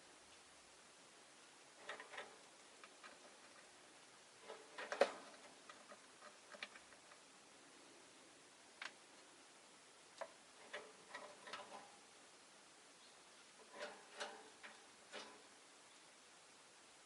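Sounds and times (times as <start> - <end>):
birds clicking and tapping in cage: 1.8 - 3.7, 4.4 - 7.3, 10.2 - 12.1, 13.6 - 15.6.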